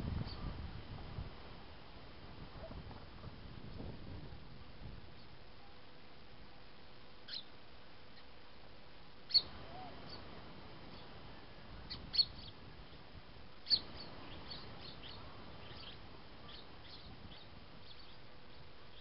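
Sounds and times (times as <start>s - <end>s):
small birds chirping: 0.2s - 0.6s, 7.2s - 8.4s, 9.2s - 19.0s.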